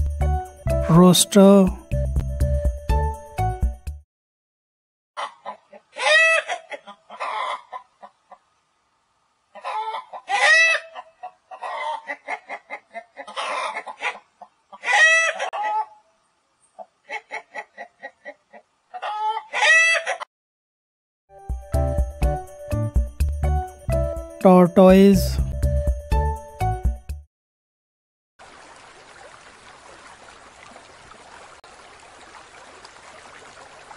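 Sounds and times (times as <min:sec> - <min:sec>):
chickens clucking: 0:05.2 - 0:08.5, 0:09.5 - 0:16.1, 0:16.8 - 0:20.3
rooster crowing: 0:14.8 - 0:16.0, 0:19.0 - 0:20.2.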